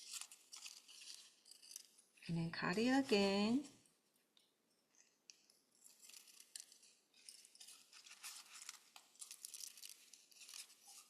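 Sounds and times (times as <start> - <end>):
scissors snipping paper: 5.8 - 11.0.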